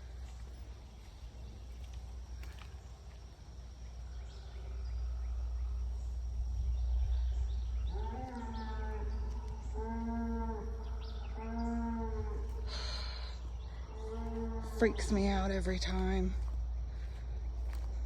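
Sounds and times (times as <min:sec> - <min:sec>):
low rumble: 0:03.6 - 0:09.8
bull bellowing: 0:07.9 - 0:12.9.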